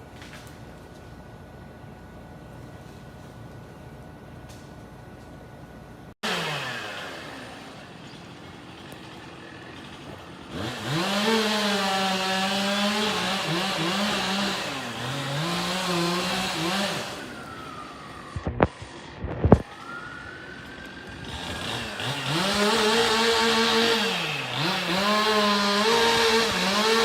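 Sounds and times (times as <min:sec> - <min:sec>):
chainsaw cutting wood: 0:06.2 - 0:27.0
engine burst with falling pitch: 0:16.0 - 0:26.6.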